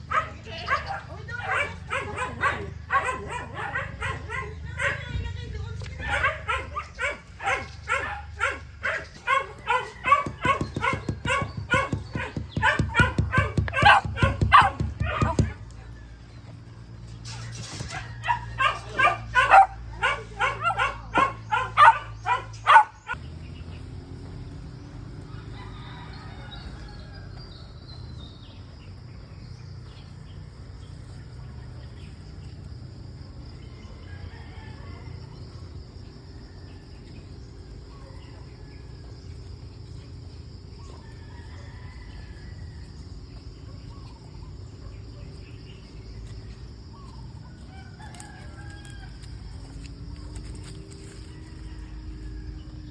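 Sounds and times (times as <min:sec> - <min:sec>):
dog barking rapidly: 0:00.0 - 0:05.2, 0:06.0 - 0:15.7, 0:17.9 - 0:23.2
roosters crowing faintly: 0:05.9 - 0:52.9.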